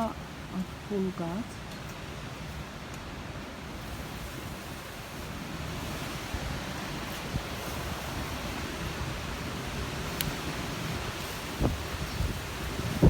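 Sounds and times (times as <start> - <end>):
strong wind buffeting microphone: 3.2 - 13.0.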